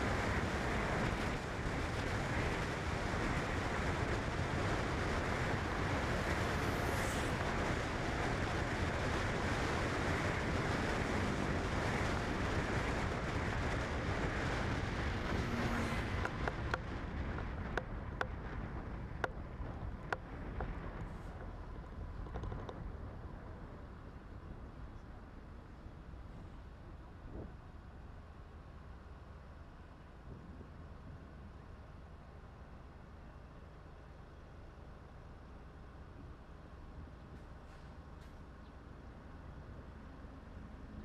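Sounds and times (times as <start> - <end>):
wind and road noise: 0.0 - 41.0.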